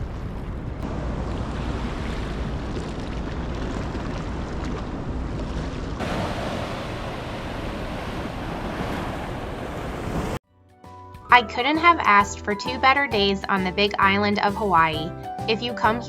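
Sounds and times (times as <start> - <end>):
ocean surf washing on shore: 0.0 - 10.4
wind rumbling on microphone: 0.0 - 10.4.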